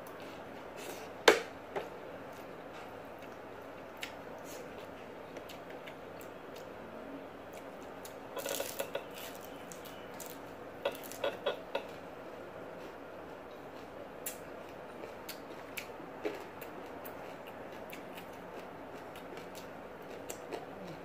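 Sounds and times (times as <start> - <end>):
room hum: 0.0 - 21.0
chewing and lip smacks: 2.3 - 6.7, 13.5 - 21.0.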